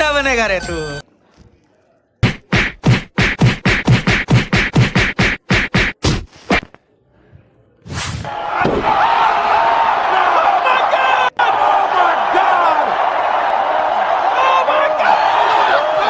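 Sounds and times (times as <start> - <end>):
punch sound effects: 7.9 - 8.8
crowd cheering: 8.0 - 16.0.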